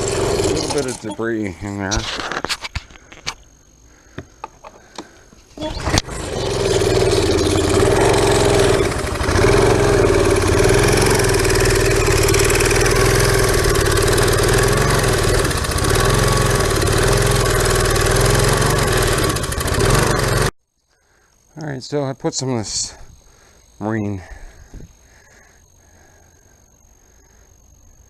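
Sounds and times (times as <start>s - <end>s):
small engine running: 0.0s - 1.6s, 5.6s - 20.5s.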